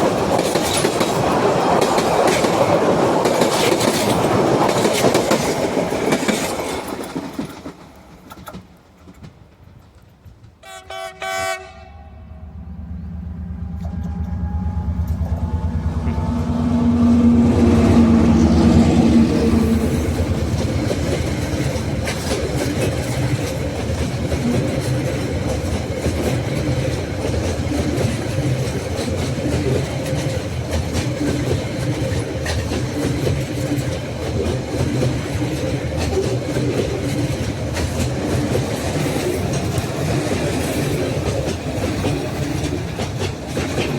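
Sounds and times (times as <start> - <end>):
train wheels clacking on rails: 0.0 - 10.6, 12.6 - 43.9
locomotive horn blasts: 10.6 - 12.6, 13.5 - 19.8
locomotive engine passing: 11.1 - 43.9.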